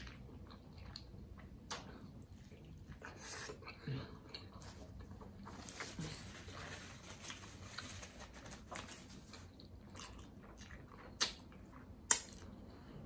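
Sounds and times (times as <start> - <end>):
person chewing: 0.0 - 5.5, 9.4 - 12.6.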